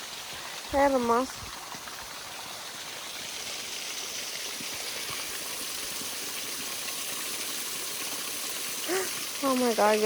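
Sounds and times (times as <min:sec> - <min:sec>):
waterfall rushing: 0:08.8 - 0:10.0.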